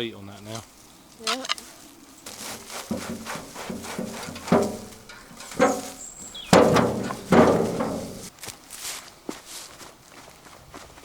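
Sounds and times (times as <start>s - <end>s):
tool chopping roots: 2.3s - 8.3s.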